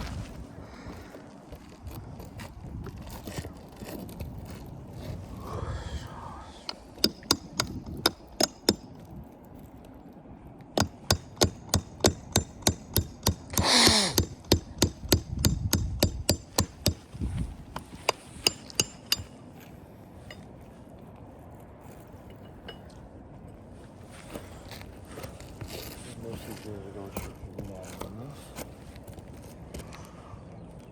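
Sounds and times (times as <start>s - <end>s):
hammer striking roofing nails: 6.7s - 9.0s, 10.8s - 17.1s, 17.8s - 19.4s.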